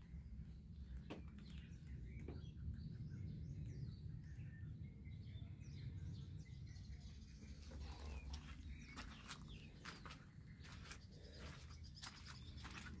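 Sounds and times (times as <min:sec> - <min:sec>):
low rumble on microphone: 0:00.0 - 0:13.0
small birds chirping: 0:00.0 - 0:13.0.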